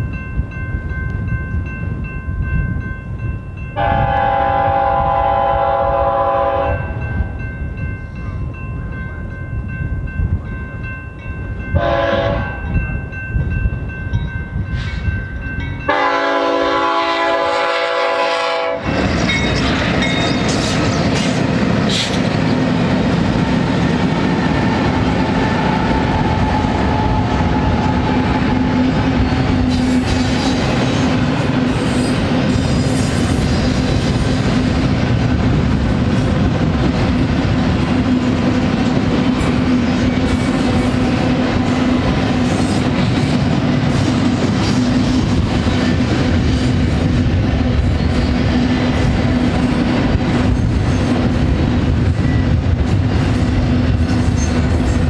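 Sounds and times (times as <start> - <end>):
train horn chord: 3.8 - 7.0, 11.8 - 12.6, 15.9 - 18.9
freight train wheels clattering: 9.2 - 55.0.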